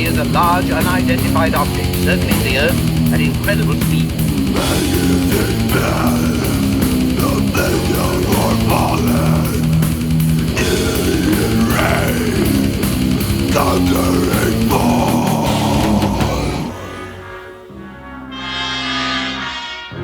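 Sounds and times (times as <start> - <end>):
drum beat: 0.0 - 16.8
distorted electric guitar riffing: 0.0 - 20.0.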